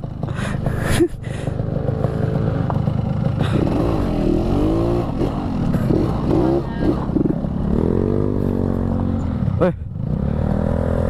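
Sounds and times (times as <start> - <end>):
two-stroke motorcycle engine running: 0.0 - 11.0.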